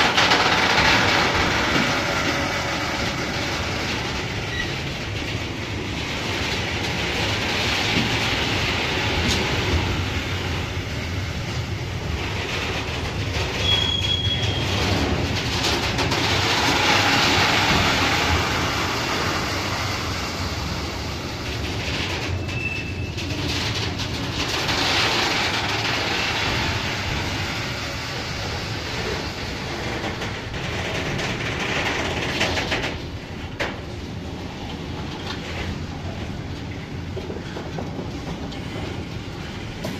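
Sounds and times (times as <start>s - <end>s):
train rumbling with wheel clatter: 0.0s - 39.9s
high wheel squeals: 13.6s - 15.0s, 22.4s - 23.2s.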